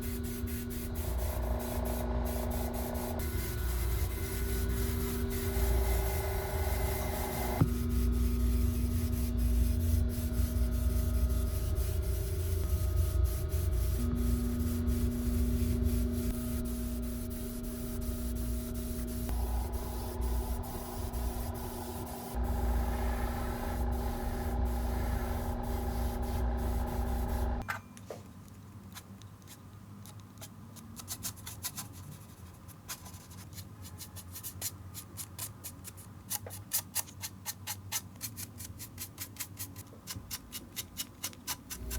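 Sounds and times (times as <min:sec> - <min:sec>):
airbrush compressor humming: 0:00.0 - 0:27.6.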